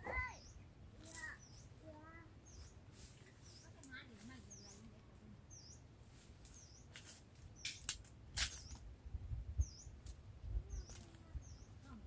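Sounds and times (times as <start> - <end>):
bird chirping: 0.0 - 5.9, 6.5 - 7.9, 9.6 - 10.0, 10.6 - 12.0
rustles and snaps of string: 3.7 - 4.4, 6.4 - 8.9, 10.0 - 10.2, 10.8 - 11.3.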